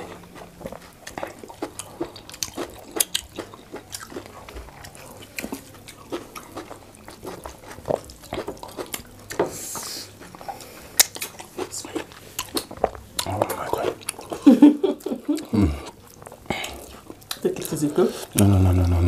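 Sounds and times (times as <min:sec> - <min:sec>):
chewing and wet mouth sounds: 0:00.0 - 0:19.0
lip smacks and clicks: 0:11.0 - 0:14.4, 0:15.4 - 0:17.8.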